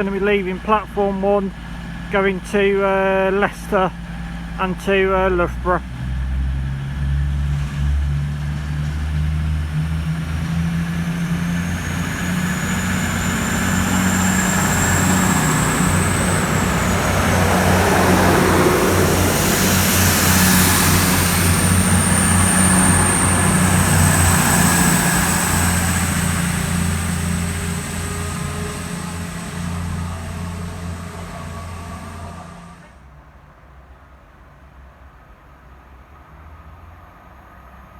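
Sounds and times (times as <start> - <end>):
diesel train engines with high whine: 0.0 - 37.9.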